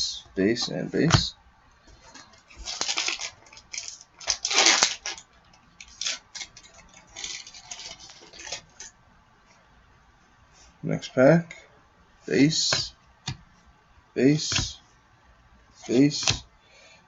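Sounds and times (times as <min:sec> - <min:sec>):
foil wrapper crinkling and tearing: 0:02.2 - 0:08.9.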